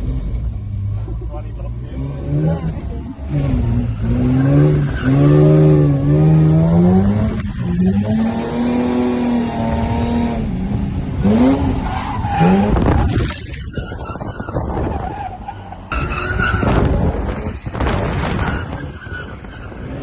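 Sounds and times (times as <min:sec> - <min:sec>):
tyres skidding: 0:00.0 - 0:20.0
car engine revving hard: 0:01.7 - 0:13.3.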